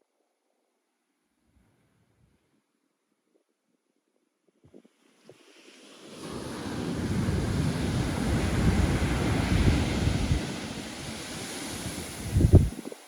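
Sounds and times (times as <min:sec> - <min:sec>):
wave breaking and washing ashore: 0:05.1 - 0:13.0
wind buffeting microphone: 0:06.7 - 0:13.0.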